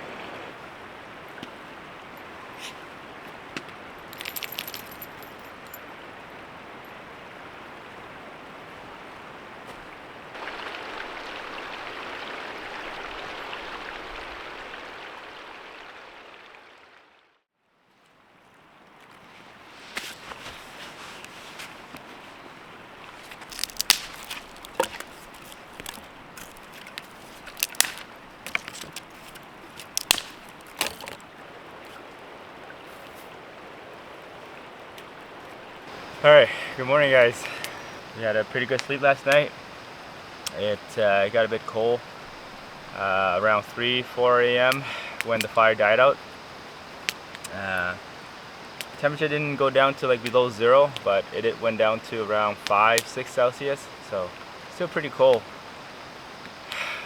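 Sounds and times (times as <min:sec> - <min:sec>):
steady rushing hiss: 0:10.1 - 0:15.8, 0:35.1 - 0:57.0
wood fire popping and cracking: 0:23.1 - 0:31.2, 0:44.5 - 0:48.0, 0:51.7 - 0:53.3.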